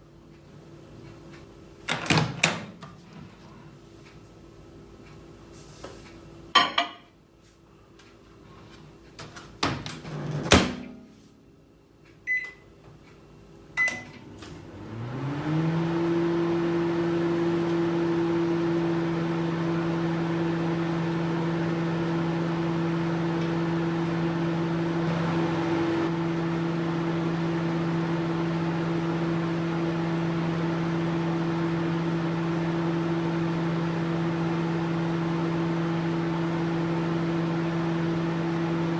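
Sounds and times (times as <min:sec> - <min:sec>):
microwave oven humming: 0:07.7 - 0:38.9
short keypad beeps: 0:12.3 - 0:12.6.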